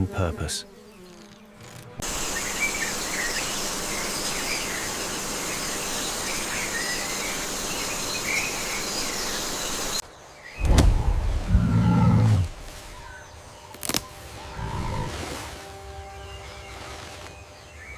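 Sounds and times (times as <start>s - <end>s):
insects hissing: 0.0s - 17.9s.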